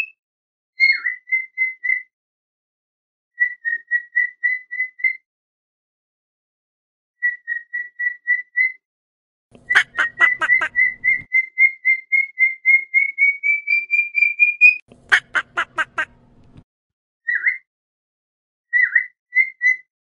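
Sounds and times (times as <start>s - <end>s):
bird whistling short notes: 18.7s - 19.9s.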